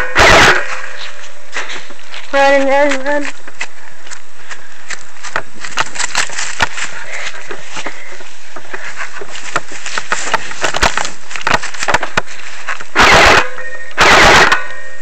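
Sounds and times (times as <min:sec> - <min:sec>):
running footsteps: 0:00.0 - 0:13.0
camera clattering: 0:07.4 - 0:12.9.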